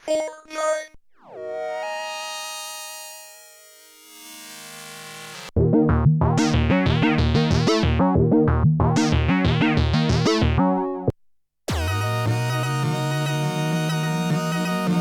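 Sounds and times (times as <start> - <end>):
plucky synthesizer notes: 4.0 - 11.1, 11.7 - 15.0
droning synthesizer note: 11.7 - 15.0.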